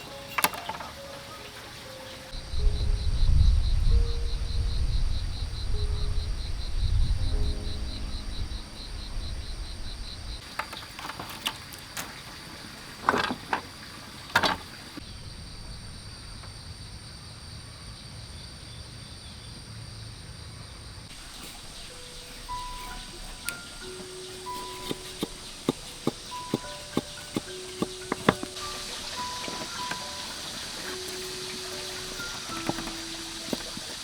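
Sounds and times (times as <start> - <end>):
insects chirping: 0.0 - 34.0
low rumble: 2.4 - 10.4
sharp clicks and knocks: 22.5 - 34.0.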